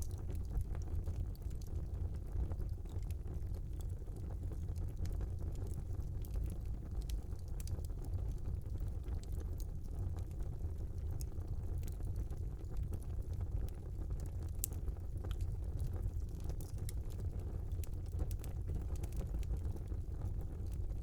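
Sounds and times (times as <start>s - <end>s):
fire crackling and popping: 0.0s - 21.0s
wood fire burning: 0.0s - 21.0s.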